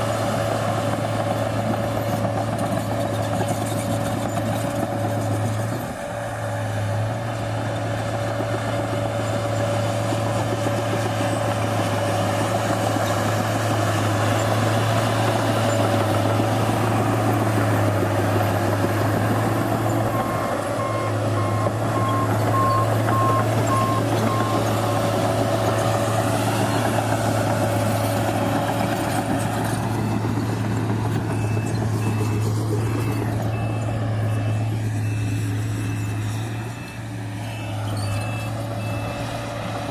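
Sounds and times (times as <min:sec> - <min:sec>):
dozer diesel engine running: 0:00.0 - 0:39.9
reverse alarm beeping: 0:20.2 - 0:24.6.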